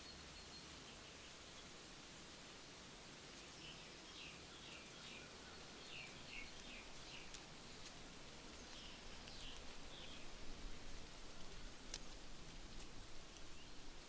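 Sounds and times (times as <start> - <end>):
light ticks: 6.1 - 13.7.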